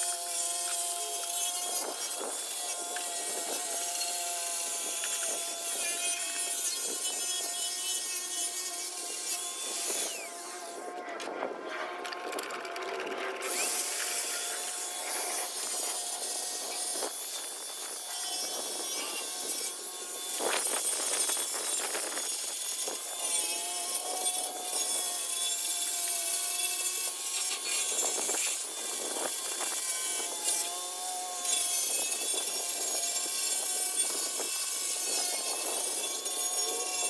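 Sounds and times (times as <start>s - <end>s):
rotary buffer polishing metal: 13.5s - 37.0s.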